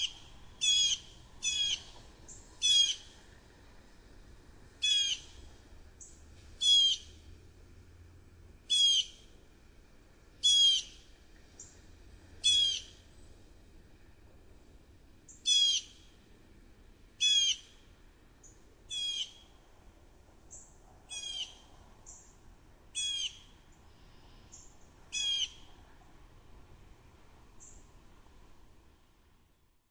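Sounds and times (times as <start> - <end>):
blue jay rasping calls: 0.0 - 1.9, 2.6 - 3.1, 4.8 - 5.4, 6.6 - 7.2, 8.7 - 9.2, 10.4 - 11.0, 12.4 - 13.0, 15.3 - 16.0, 17.2 - 17.8, 18.9 - 19.4, 21.1 - 21.6, 23.0 - 23.5, 25.1 - 25.7.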